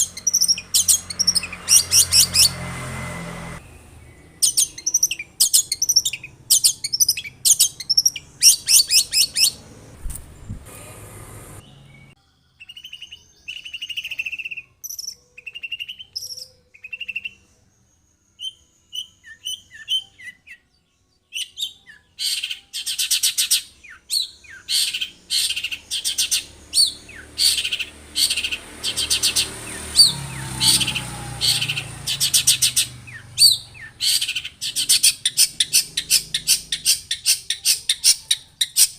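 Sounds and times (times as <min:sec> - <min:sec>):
bird whistled notes: 0:00.0 - 0:02.6, 0:04.3 - 0:09.6
bird harsh chattering song: 0:00.0 - 0:02.7, 0:03.7 - 0:11.0, 0:11.6 - 0:17.5, 0:21.3 - 0:38.9.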